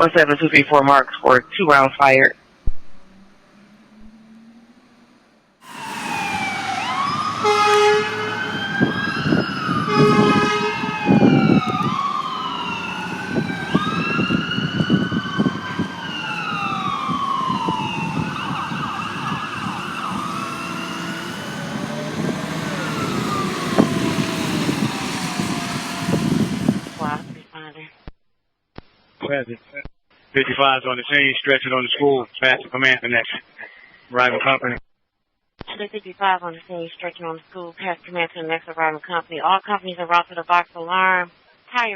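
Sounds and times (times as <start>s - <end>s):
truck engines rumbling: 3.1s - 27.4s
sirens wailing: 3.1s - 27.5s
horn blasts: 5.6s - 27.4s.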